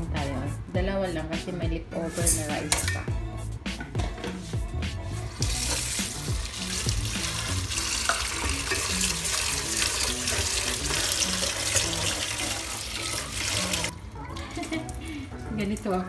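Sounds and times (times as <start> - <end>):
tap water running into pot: 5.4 - 15.0.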